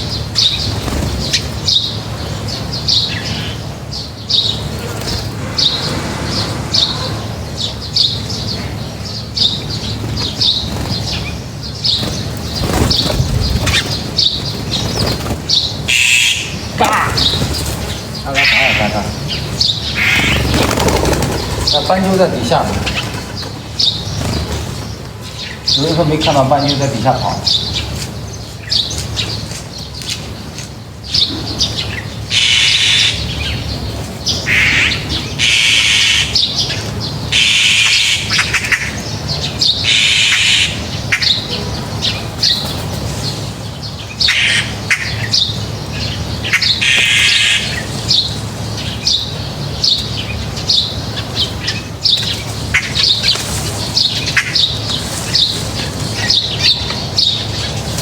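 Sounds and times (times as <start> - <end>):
small birds chirping: 0.0 - 58.0
harsh noisy bursts: 4.5 - 9.1.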